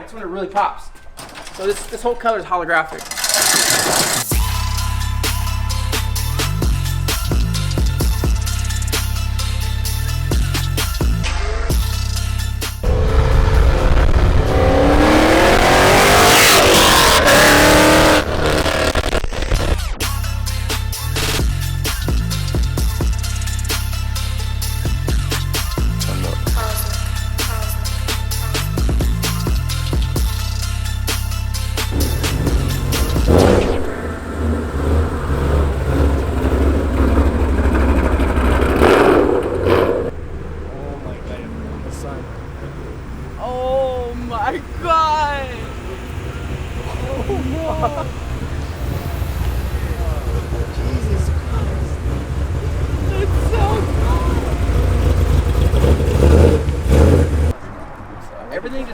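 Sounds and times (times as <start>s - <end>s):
car engine revving hard: 3.0s - 12.0s, 12.6s - 19.9s, 21.0s - 23.9s, 31.8s - 57.6s.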